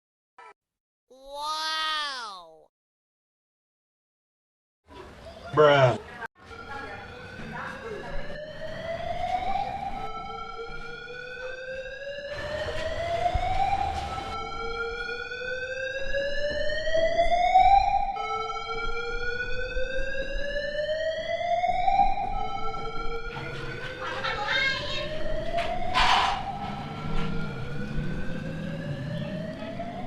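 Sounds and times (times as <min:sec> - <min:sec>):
siren wailing in rising sweeps: 0:06.5 - 0:23.8, 0:24.8 - 0:30.0.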